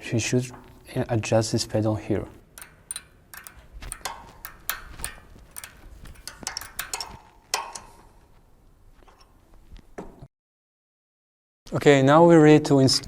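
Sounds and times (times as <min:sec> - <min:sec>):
metallic clicks and taps: 0:00.5 - 0:01.0, 0:02.3 - 0:08.4.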